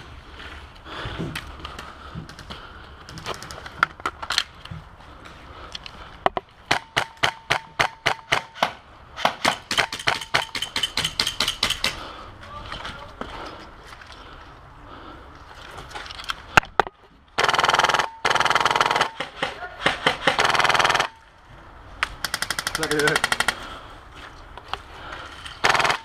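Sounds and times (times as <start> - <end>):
airsoft rifle shots: 6.7 - 12.0, 17.4 - 21.2, 25.6 - 26.0.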